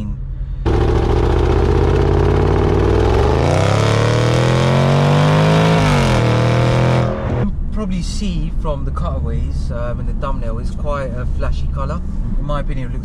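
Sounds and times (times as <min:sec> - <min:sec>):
car engine accelerating hard: 0:00.7 - 0:07.5.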